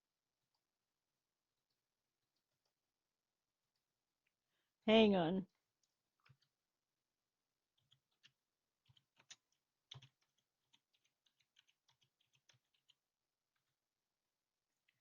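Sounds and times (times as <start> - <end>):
faint keyboard typing: 5.5 - 6.6, 7.7 - 13.8.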